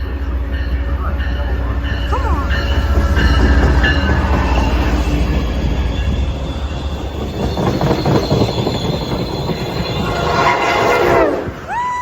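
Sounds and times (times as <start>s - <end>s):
train cars rumbling on rails: 0.0s - 12.0s
high wheel squeal: 2.1s - 12.0s
clacks over rail joints: 2.2s - 6.2s, 6.8s - 11.2s.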